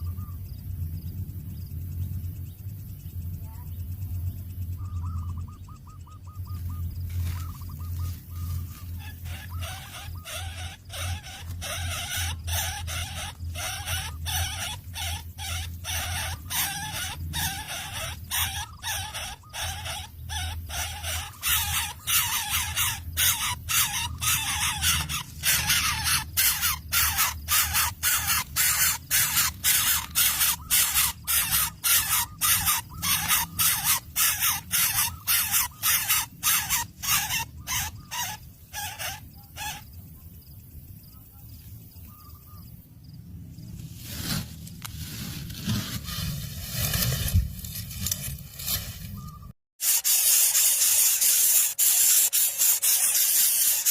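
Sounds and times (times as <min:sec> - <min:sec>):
harsh hissing rasps: 0:09.0 - 0:39.8, 0:49.8 - 0:53.9.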